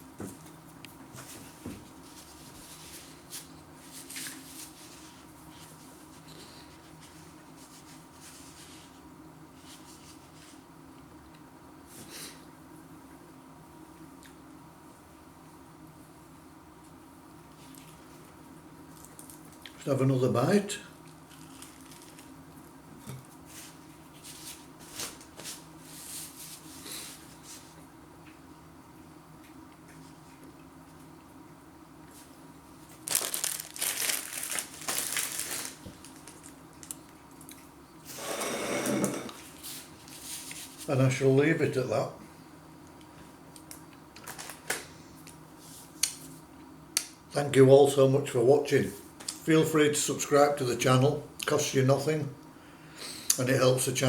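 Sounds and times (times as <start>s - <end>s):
faint steady hum: 0.0s - 54.0s
chewing flaky pastry: 21.0s - 22.7s.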